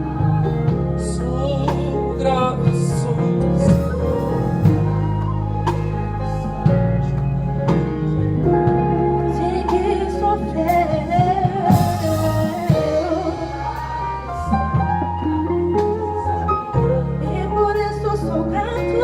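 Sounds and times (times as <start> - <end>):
person singing: 0.0 - 5.2
bass line: 0.0 - 19.0.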